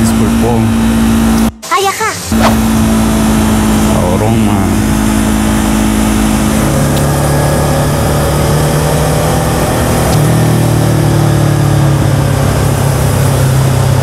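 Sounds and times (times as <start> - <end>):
motorcycle engine running: 0.0 - 1.6, 2.3 - 14.0
riding noise: 0.0 - 14.0.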